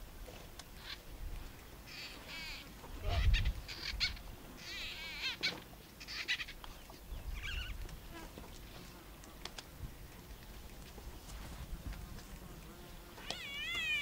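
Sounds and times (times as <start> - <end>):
birds warbling trilled calls: 1.9 - 7.8.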